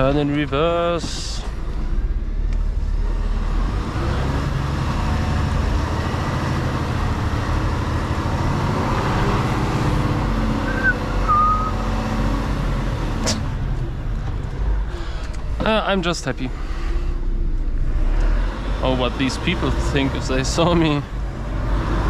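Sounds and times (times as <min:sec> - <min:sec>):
truck diesel engine running: 0:04.6 - 0:17.4
high squeaks: 0:09.0 - 0:12.1.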